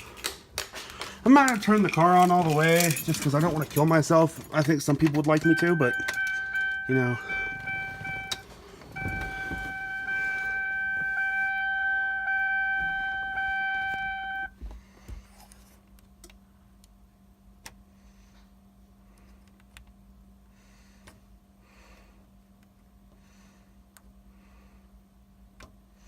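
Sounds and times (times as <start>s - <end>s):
faint steady hum: 0.0s - 26.0s
dashboard warning chime: 5.1s - 14.5s.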